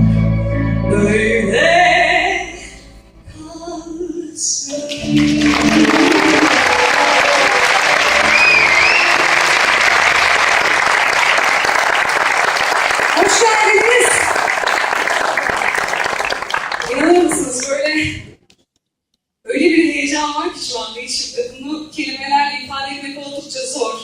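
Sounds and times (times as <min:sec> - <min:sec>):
song with singing and band: 0:03.4 - 0:09.0
audience applauding: 0:04.8 - 0:17.6.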